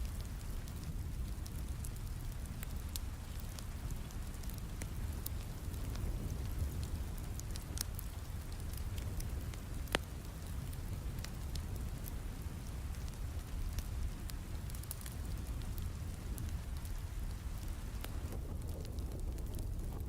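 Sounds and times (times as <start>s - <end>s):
fireplace crackling and popping: 0.0s - 20.0s
steady rain: 0.0s - 20.0s.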